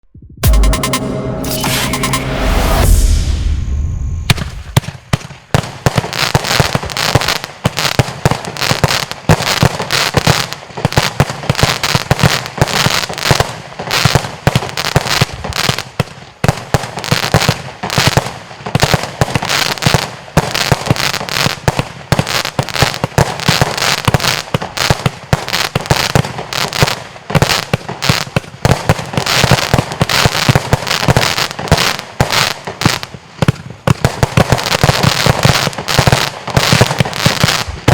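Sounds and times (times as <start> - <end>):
firework rapid bangs: 4.3 - 37.9.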